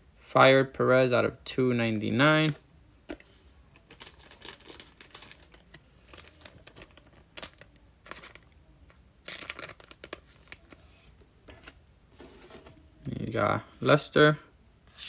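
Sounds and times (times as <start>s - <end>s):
card pack wrapper crinkling: 3.8s - 8.6s, 9.2s - 10.8s.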